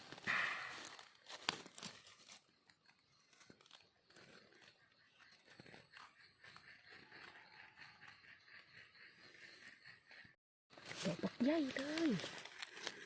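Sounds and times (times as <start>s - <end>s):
rustling dry leaf litter: 0.0s - 2.4s, 10.8s - 13.0s.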